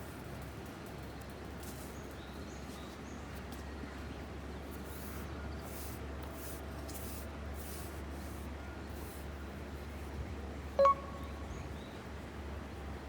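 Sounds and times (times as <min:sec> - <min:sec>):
faint bird chirps: 0:10.8 - 0:11.8.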